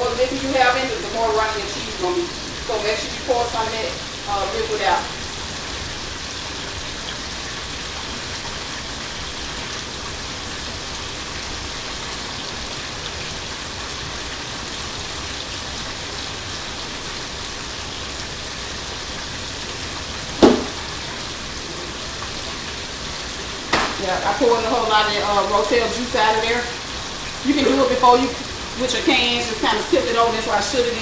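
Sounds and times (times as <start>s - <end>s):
chicken sizzling in hot oil: 0.0s - 31.0s
short knock: 20.4s - 20.8s.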